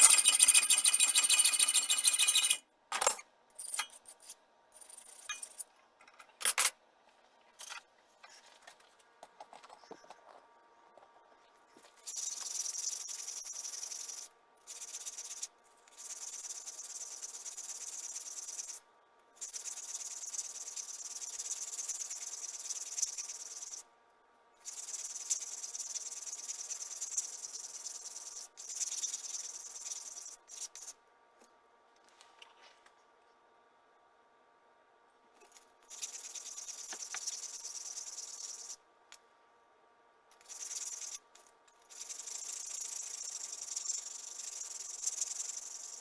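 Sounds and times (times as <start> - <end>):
tool cutting metal hissing: 0.0 - 2.6.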